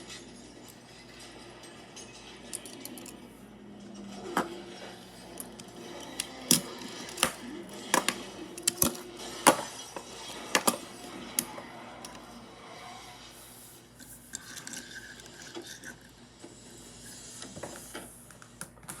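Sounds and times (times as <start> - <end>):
small hard objects knocking together: 5.3 - 12.2.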